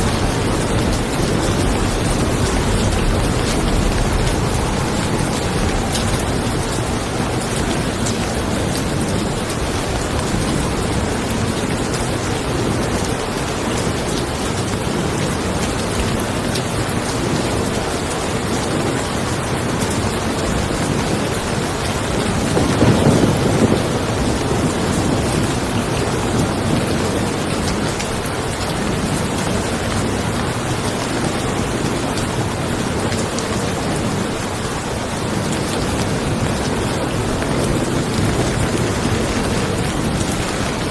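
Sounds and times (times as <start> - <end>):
rain falling on a car: 0.0 - 40.9
thunder rumbling: 0.0 - 40.9.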